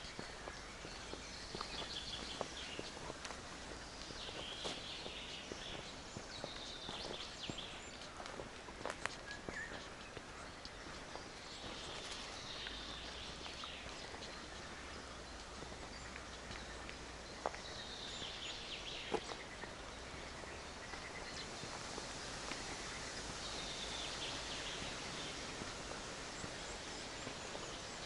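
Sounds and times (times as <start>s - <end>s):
songbird singing: 0.0s - 28.0s
steady background hiss: 0.0s - 28.0s.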